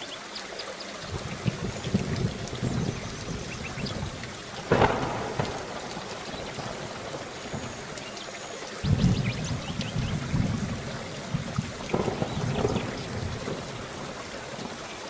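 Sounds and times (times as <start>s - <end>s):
heavy rain: 0.0s - 15.0s
sharp thunderclap: 1.1s - 8.1s, 8.8s - 14.8s
low thunder rumbles: 1.1s - 15.0s.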